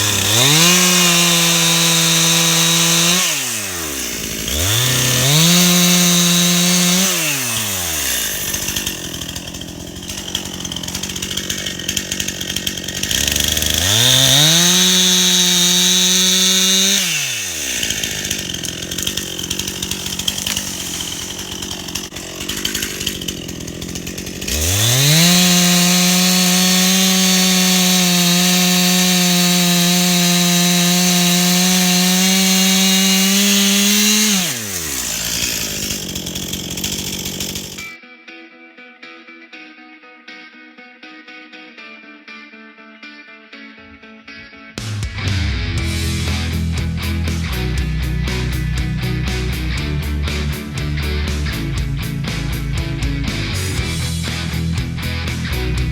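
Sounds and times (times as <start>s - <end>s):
chainsaw cutting wood: 0.0s - 38.0s, 44.8s - 55.9s
chainsaw revving: 0.0s - 38.0s, 45.0s - 55.9s.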